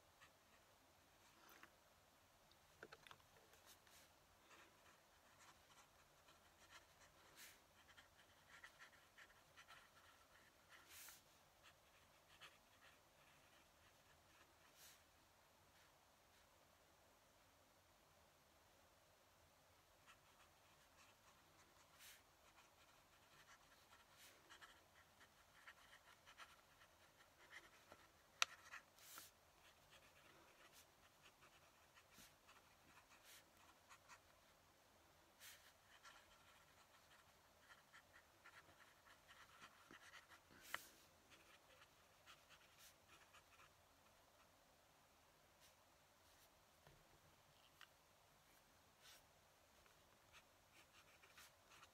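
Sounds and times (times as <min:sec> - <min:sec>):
pen nib scratching on paper: 0:03.6 - 0:15.0, 0:20.0 - 0:34.4, 0:35.4 - 0:43.7, 0:49.8 - 0:51.9.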